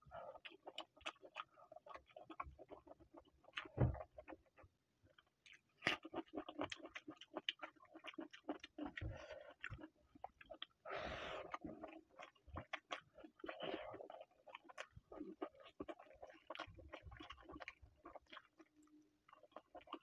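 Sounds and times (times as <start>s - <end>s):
wet chewing and smacking: 0.1s - 10.8s, 11.4s - 20.0s.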